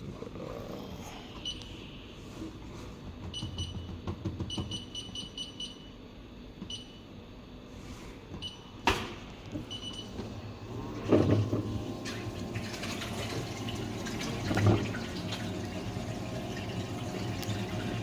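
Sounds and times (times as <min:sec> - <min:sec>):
washing machine panel beeping: 0:03.3 - 0:05.9, 0:06.6 - 0:07.1, 0:08.4 - 0:08.8, 0:09.6 - 0:12.0.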